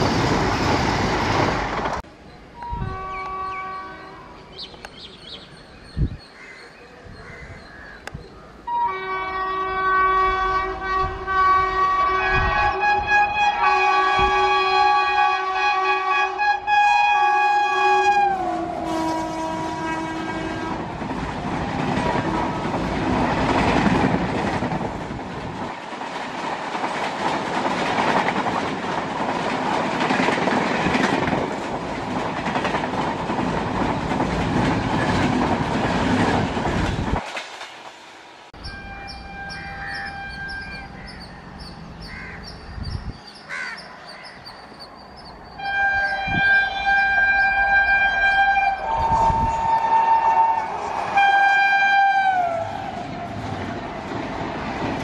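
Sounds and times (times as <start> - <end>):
locomotive horn: 2.6 - 4.4, 8.7 - 21.0, 38.6 - 40.9, 45.6 - 54.0
train wheels clattering over rail joints: 20.8 - 38.1.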